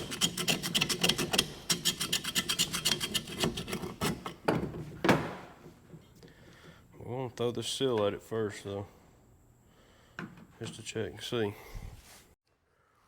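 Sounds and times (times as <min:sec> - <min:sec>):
hand scraping rusted metal: 0:00.0 - 0:04.5.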